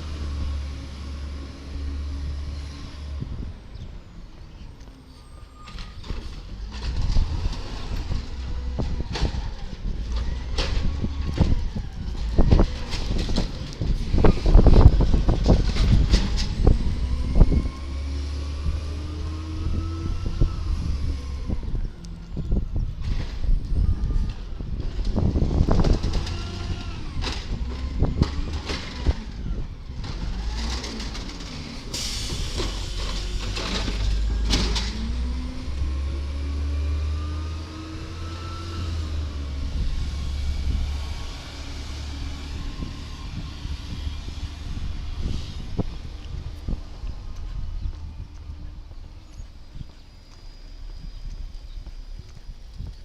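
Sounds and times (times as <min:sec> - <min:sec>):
garbage truck engine revving: 0:06.2 - 0:21.8, 0:24.8 - 0:48.9.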